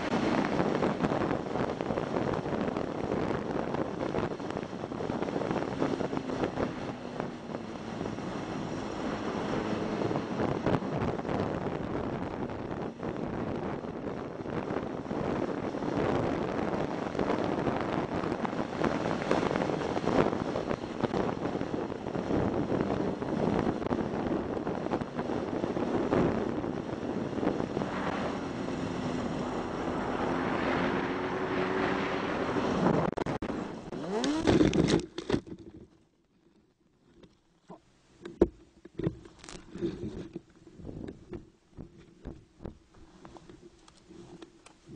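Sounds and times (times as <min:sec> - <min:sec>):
motorcycle engine running: 0:00.0 - 0:35.1
wind noise on microphone: 0:00.0 - 0:36.0, 0:37.0 - 0:44.9.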